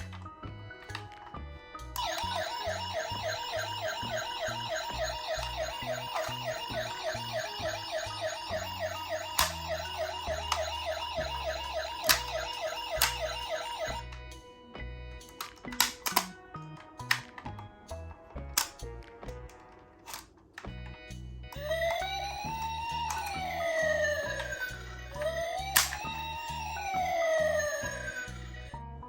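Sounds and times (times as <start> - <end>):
toy siren wailing: 2.0 - 14.2, 21.5 - 28.7
sharp clicks: 8.9 - 10.8, 11.9 - 14.2.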